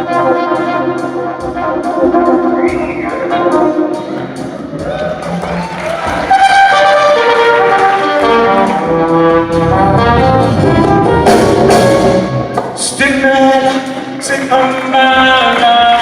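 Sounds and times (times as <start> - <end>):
brass horn sustained notes: 0.0 - 12.7
live jazz band playing: 0.0 - 16.0.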